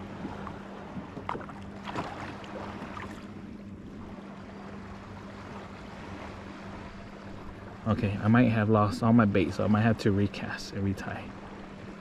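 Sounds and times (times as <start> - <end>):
steady low hum: 0.0 - 12.0
water lapping against kayak hull: 0.0 - 12.0.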